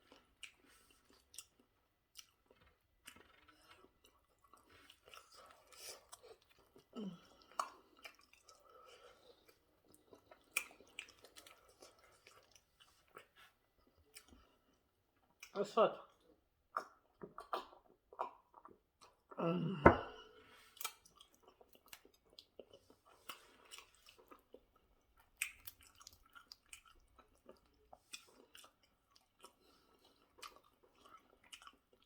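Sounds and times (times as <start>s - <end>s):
person chewing food: 0.0s - 15.5s, 16.1s - 32.0s.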